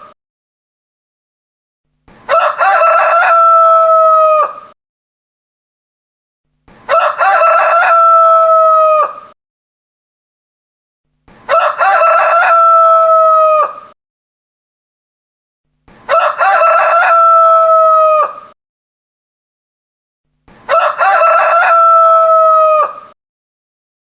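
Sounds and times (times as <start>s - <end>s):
rooster crowing: 2.3s - 4.8s, 6.9s - 9.4s, 11.5s - 14.0s, 16.1s - 18.6s, 20.7s - 23.2s.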